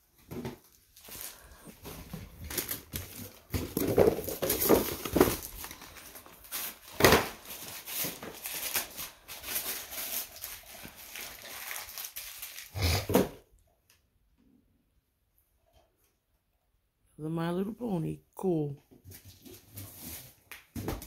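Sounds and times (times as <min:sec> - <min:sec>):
wrapping paper tearing and crumpling: 0:00.6 - 0:13.3.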